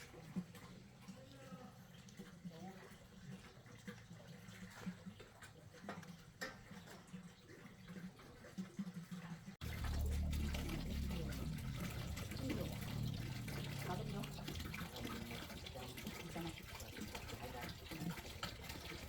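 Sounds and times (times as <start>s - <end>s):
running water: 0.0s - 19.0s
loud rush of water: 9.6s - 17.2s.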